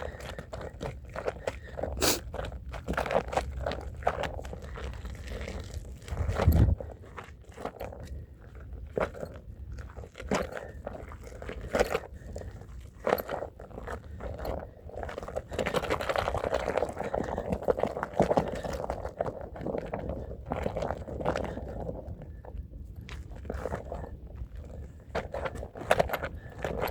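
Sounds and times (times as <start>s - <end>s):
hand brush scrubbing rug: 2.0s - 2.2s.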